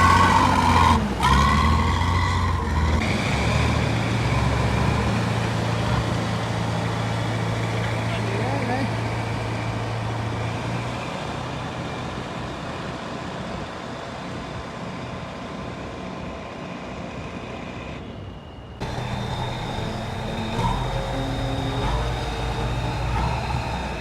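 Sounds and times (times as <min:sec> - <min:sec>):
louder engine: 0:00.0 - 0:12.7, 0:18.8 - 0:24.0
diesel engine running: 0:00.0 - 0:18.2, 0:18.8 - 0:24.0.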